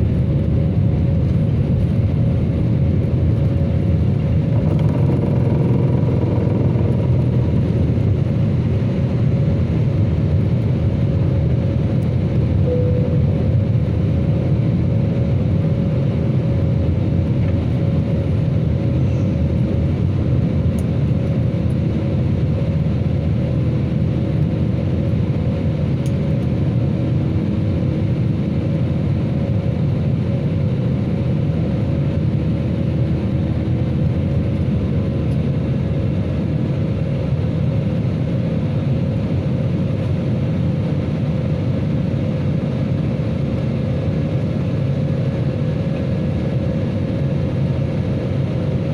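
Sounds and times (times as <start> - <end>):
jet engines rumbling: 0.0 - 21.3
faint steady whine: 12.6 - 13.7.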